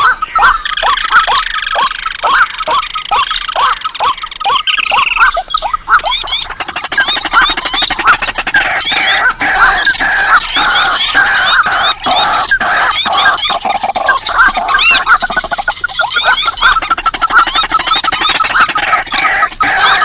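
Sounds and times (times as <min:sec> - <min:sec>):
lower clucking bird calls: 0:00.0 - 0:20.0
marsh bird calls chorus: 0:00.0 - 0:20.0.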